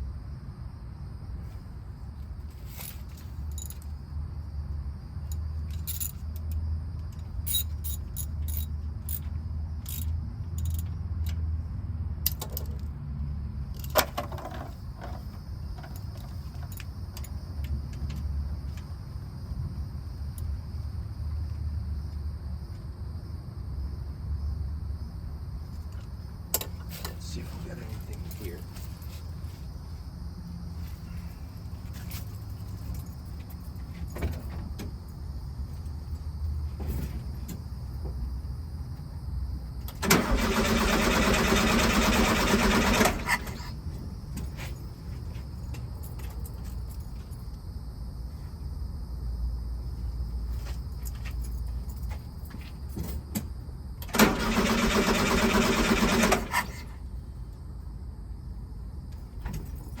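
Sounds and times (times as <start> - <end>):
car starter cranking engine: 39.9 - 43.8, 54.0 - 56.9.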